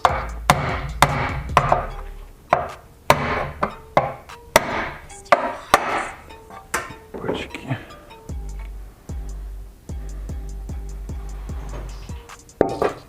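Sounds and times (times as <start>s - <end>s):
hand tools knocking on metal: 0.0s - 1.9s, 2.5s - 7.1s, 12.6s - 13.0s.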